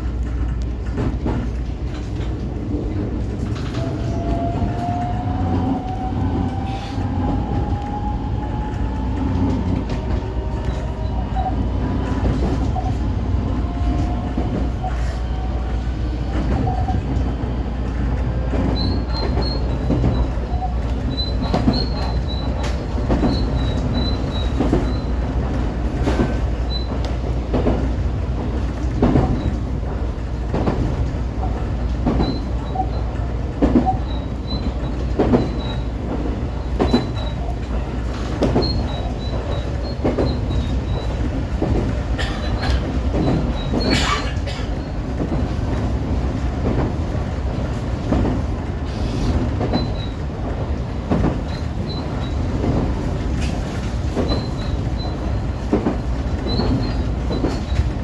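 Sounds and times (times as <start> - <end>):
train rumbling: 0.0 - 58.0
wheels clicking over rail joints: 18.2 - 58.0.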